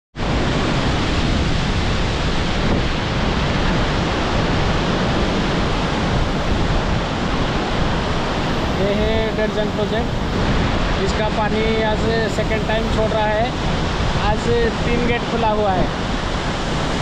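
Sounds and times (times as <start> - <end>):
water rushing from spillway: 0.2 - 17.0.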